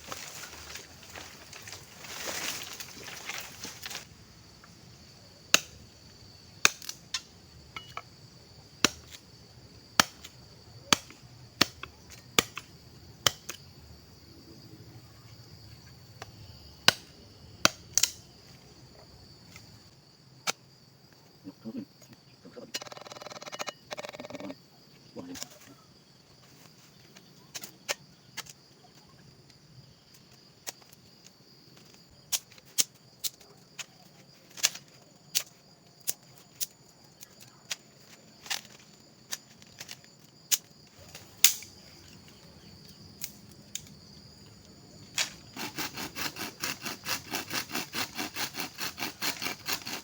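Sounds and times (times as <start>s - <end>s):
firewood cracking and snapping: 0.0s - 4.1s
insects droning: 0.0s - 50.0s.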